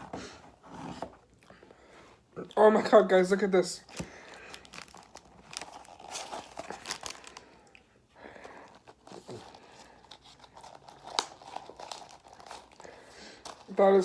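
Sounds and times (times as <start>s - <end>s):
paper packaging crinkling and tearing: 3.8s - 7.6s, 8.3s - 14.0s.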